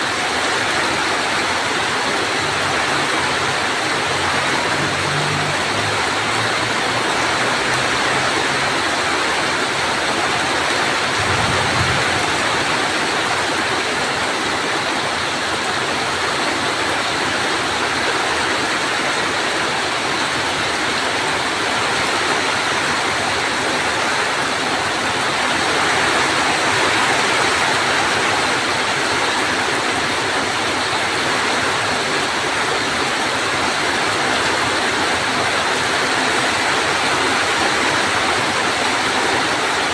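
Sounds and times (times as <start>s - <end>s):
heavy rain: 0.0s - 39.9s
low thunder rumble: 11.1s - 12.9s.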